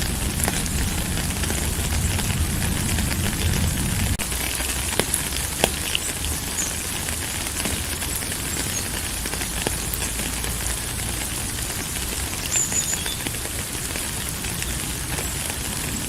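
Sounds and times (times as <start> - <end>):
low rumble: 0.0 - 5.6
steady rain pattering: 0.0 - 16.0.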